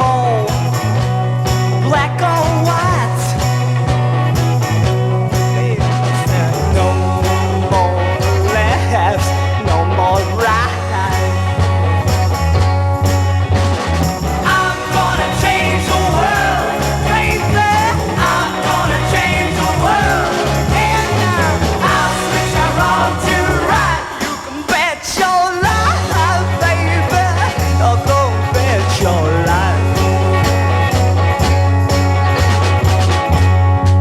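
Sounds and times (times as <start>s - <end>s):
bass guitar notes: 0.0s - 24.3s, 25.6s - 34.0s
wavering lead guitar line: 0.0s - 34.0s.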